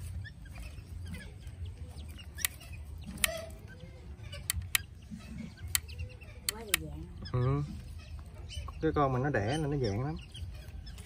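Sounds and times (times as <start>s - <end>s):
birds chirping: 0.0s - 11.0s
sharp clicks: 2.1s - 3.6s, 4.3s - 7.0s.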